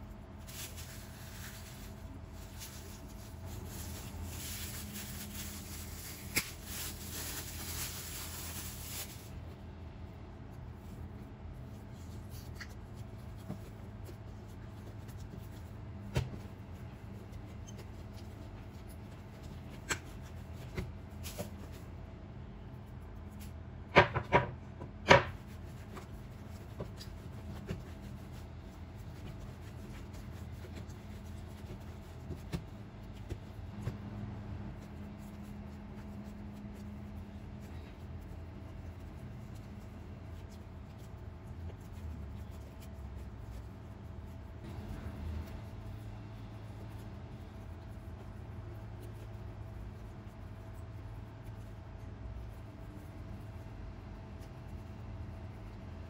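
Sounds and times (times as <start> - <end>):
hands kneading dough: 0.0 - 56.0
plastic bag crinkling: 0.4 - 9.4
knocks on counter: 24.0 - 25.4.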